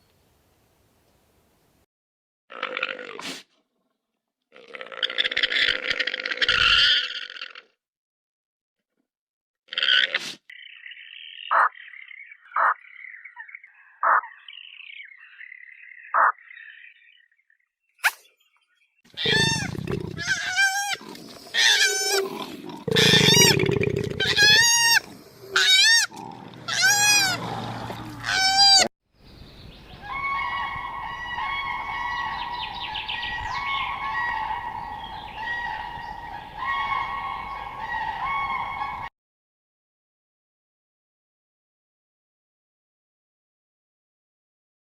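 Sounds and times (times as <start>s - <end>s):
frog croaking: 11.4s - 11.8s, 19.2s - 27.6s
long pitched animal calls: 19.2s - 28.9s.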